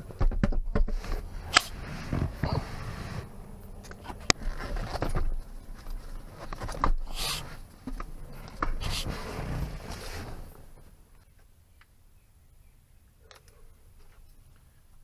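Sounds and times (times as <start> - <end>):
battery scraping and rustling: 0.0 - 11.0.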